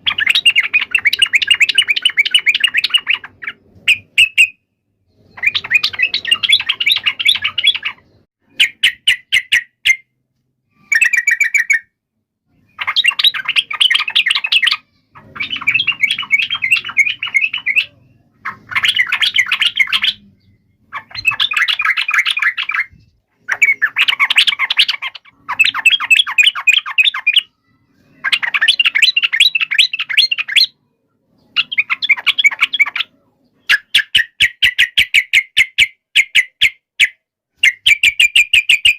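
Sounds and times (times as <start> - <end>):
bird chattering calls: 5.2 - 10.0, 12.6 - 27.5.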